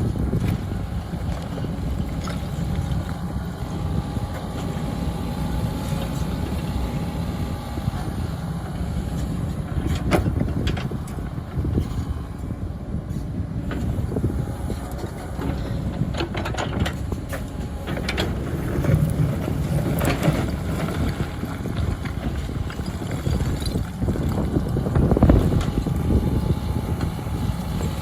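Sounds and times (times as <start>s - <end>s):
diesel engines rumbling: 0.0s - 28.0s
machinery clanks and knocks: 7.9s - 28.0s.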